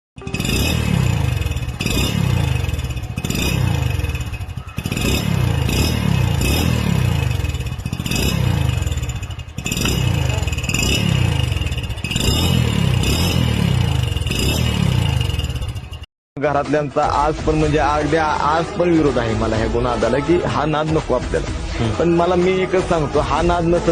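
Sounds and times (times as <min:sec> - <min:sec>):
motorcycle engine revving: 0:00.2 - 0:16.1
exhaust crackling and popping: 0:07.3 - 0:13.2.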